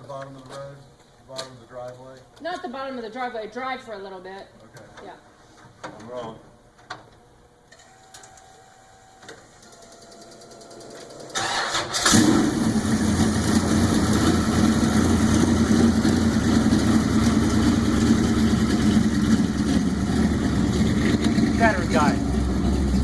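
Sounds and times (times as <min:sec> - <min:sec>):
engine cranking and starting: 0:10.2 - 0:22.0
engine idling loudly: 0:11.5 - 0:23.0.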